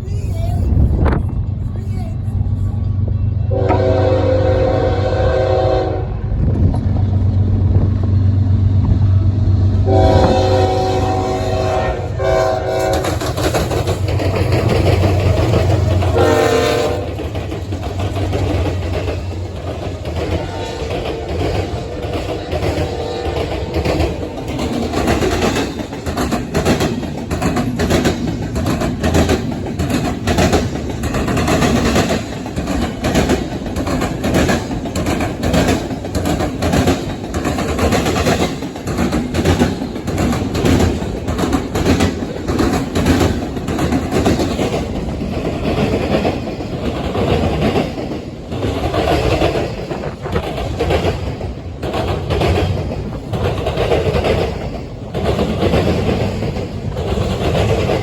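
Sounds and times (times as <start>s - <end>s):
low train rumble: 0.0s - 58.0s
train wheels clickety-clack: 0.9s - 58.0s.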